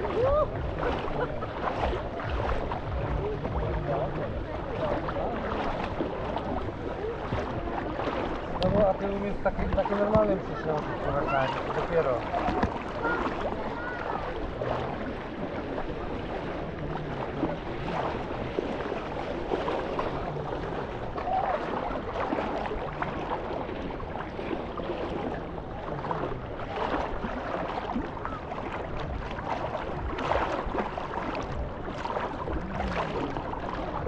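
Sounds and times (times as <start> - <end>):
faint distant voices: 0.0 - 23.3
water washing at shore: 0.0 - 34.0.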